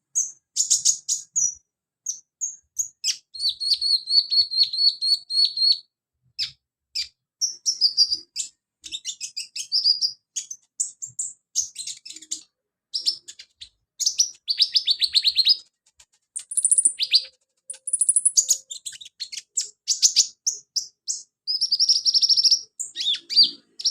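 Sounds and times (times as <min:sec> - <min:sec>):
bird singing high chirps and trills: 0:00.1 - 0:15.7, 0:16.4 - 0:23.9.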